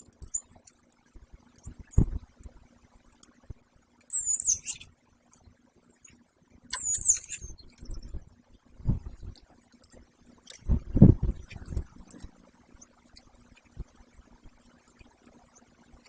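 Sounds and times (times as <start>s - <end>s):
high-pitched bird calls: 4.1s - 4.9s, 6.7s - 7.7s.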